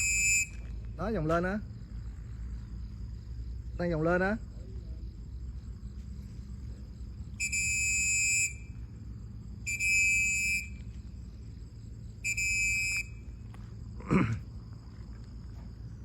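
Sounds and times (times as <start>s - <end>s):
long high-pitched beeps: 0.0s - 0.9s, 7.4s - 11.3s, 12.1s - 13.5s
faint high whine: 0.0s - 16.0s.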